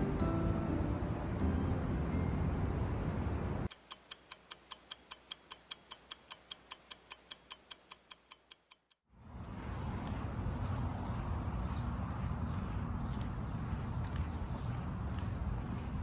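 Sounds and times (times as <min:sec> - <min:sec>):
rapid sharp ticking: 0:03.7 - 0:09.0.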